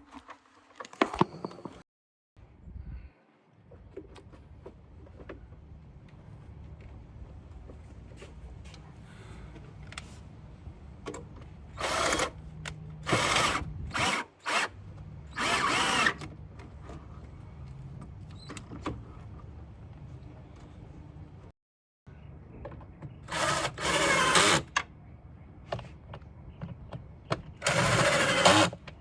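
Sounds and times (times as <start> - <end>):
power drill running: 15.3 - 16.2, 23.3 - 24.6, 27.6 - 28.8.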